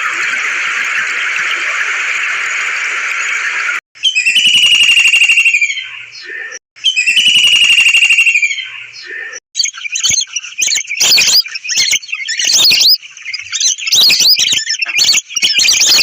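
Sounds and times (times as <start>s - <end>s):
birds chirping: 0.0s - 16.0s
whistle-like bird call: 4.0s - 6.1s, 6.8s - 9.0s, 9.6s - 16.0s.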